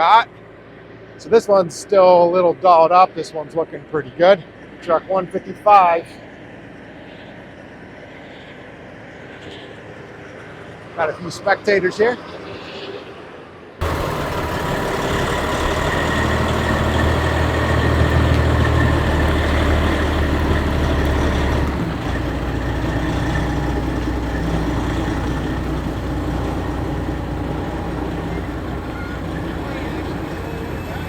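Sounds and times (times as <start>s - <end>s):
diesel truck engine running: 13.8s - 31.0s.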